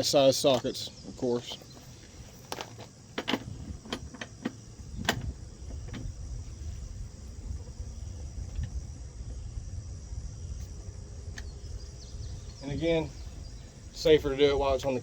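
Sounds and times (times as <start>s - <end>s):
crickets chirring: 0.0s - 15.0s
steady low rumble: 1.6s - 15.0s.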